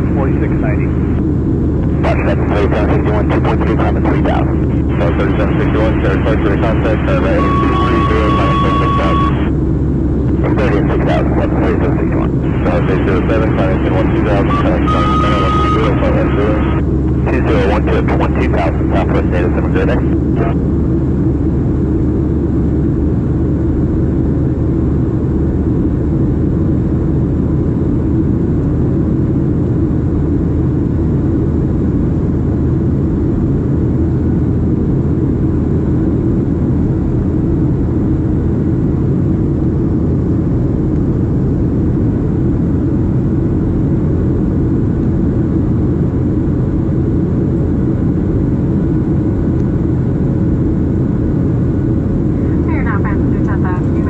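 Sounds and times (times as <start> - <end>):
faint steady tones: 0.0 - 21.9, 49.0 - 54.0
jet airliner drone: 0.0 - 54.0.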